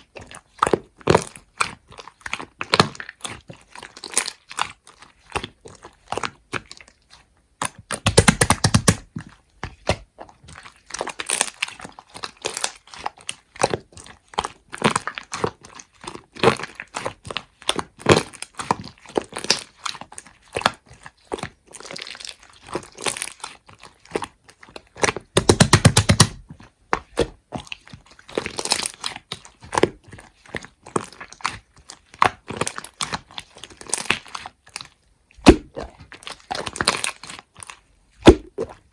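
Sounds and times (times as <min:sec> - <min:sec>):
slime squelching: 0:00.0 - 0:38.9
slime crackling and popping: 0:07.6 - 0:09.2, 0:25.0 - 0:38.8.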